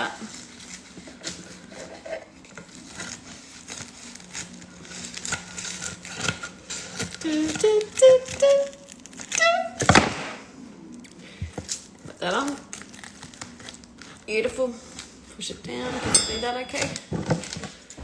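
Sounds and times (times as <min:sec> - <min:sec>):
scissors cutting crisp pastry: 0:00.2 - 0:10.1, 0:11.0 - 0:15.5.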